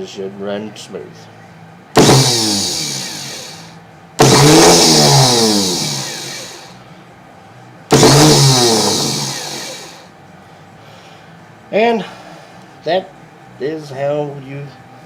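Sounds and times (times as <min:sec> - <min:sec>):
electric starter motor whine: 0:02.0 - 0:06.8, 0:07.9 - 0:10.1.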